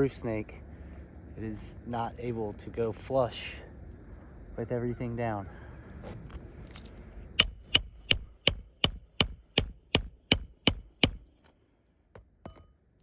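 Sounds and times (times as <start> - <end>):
hammer striking nail with metallic ring: 7.4 - 11.5.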